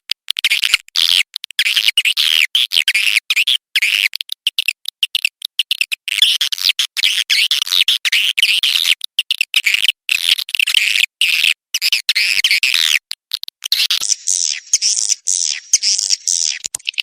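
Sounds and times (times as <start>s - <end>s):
swiftlets twittering: 13.8s - 17.0s.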